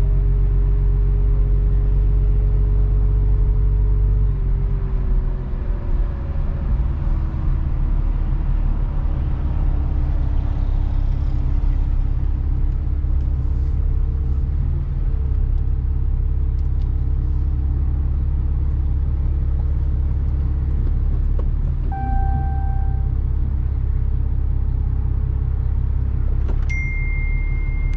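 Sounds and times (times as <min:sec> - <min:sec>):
truck engine and road rumble: 0:00.0 - 0:27.9
short steady beep: 0:21.9 - 0:23.2, 0:26.7 - 0:27.9.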